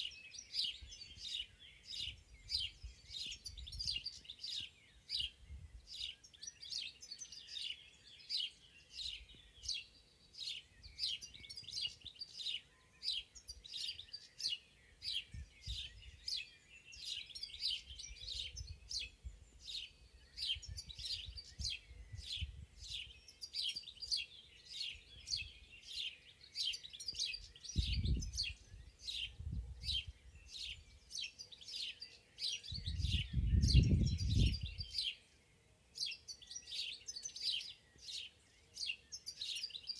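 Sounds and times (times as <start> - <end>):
forest birds chirping: 0.0 - 39.9.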